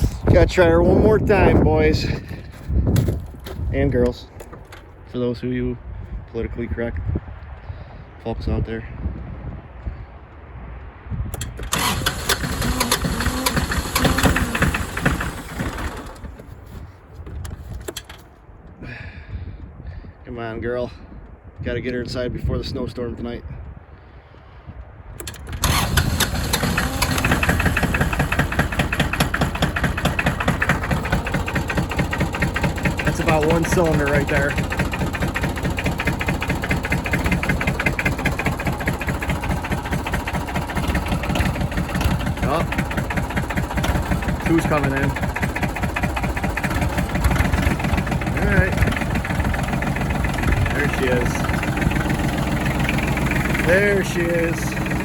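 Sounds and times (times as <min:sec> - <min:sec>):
starter cranking diesel engine: 0:00.0 - 0:02.6, 0:11.3 - 0:16.8, 0:25.2 - 0:55.0.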